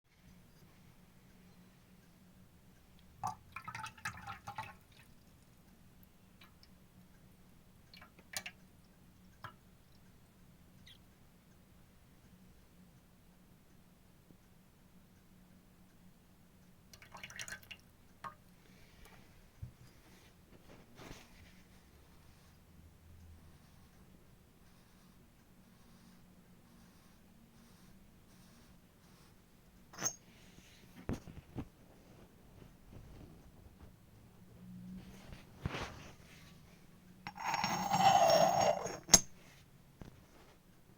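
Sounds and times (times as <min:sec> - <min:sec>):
faint low hum: 0:00.1 - 0:40.9
soft hissy rustles: 0:18.5 - 0:22.7, 0:23.5 - 0:34.1, 0:35.0 - 0:37.0, 0:39.4 - 0:40.9
clay teapot lid clinking: 0:30.0 - 0:30.3, 0:37.3 - 0:39.4.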